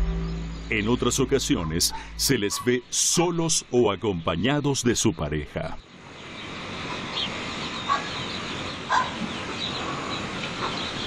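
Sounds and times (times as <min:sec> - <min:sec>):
bird calls: 0:00.0 - 0:11.0
steady outdoor hiss: 0:00.0 - 0:11.0.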